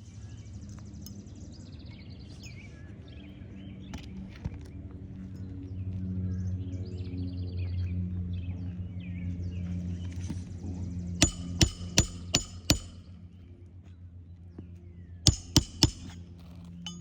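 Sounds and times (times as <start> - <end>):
hammer striking nails: 11.2 - 13.0, 15.3 - 16.2.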